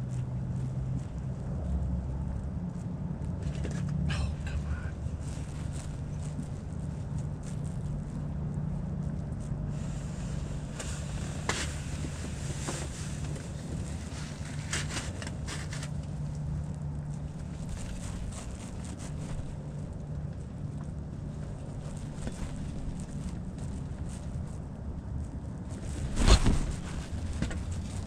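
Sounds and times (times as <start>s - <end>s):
wind buffeting the microphone: 16.9s - 28.0s.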